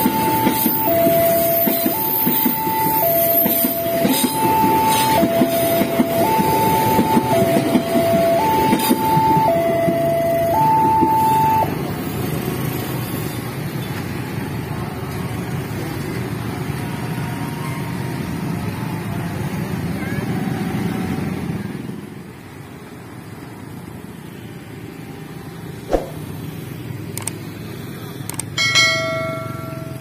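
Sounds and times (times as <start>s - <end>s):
level crossing two-tone alarm: 0.0s - 11.7s
train rumbling and clattering: 0.0s - 22.0s
road traffic hum: 0.0s - 30.0s.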